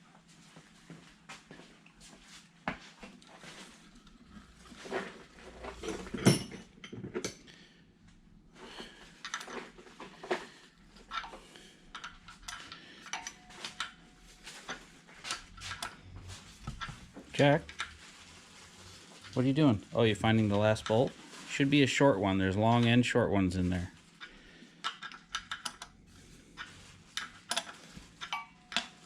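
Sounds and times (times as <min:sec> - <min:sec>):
metal hardware clinking: 0:11.1 - 0:16.0, 0:26.6 - 0:29.0.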